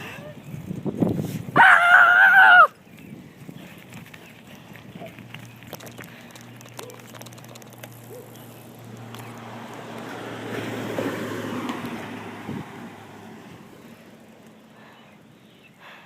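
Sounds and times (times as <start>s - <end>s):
delivery truck driving past: 8.2s - 14.4s.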